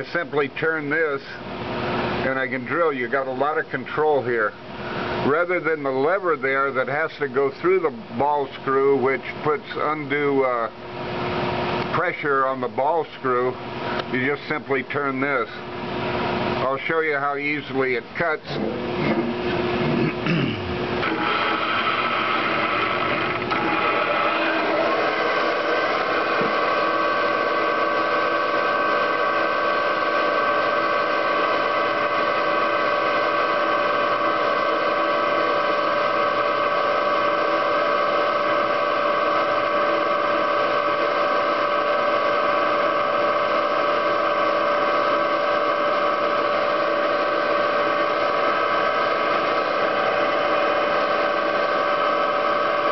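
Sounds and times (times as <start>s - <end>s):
spindle motor whine: 18.4s - 52.9s.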